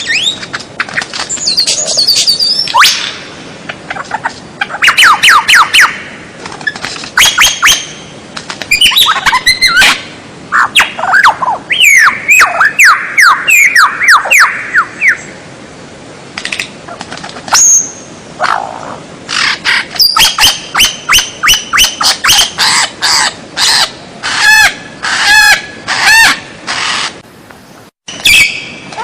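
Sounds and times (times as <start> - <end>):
bird whistling downward notes: 0.0 - 0.4, 10.7 - 15.3.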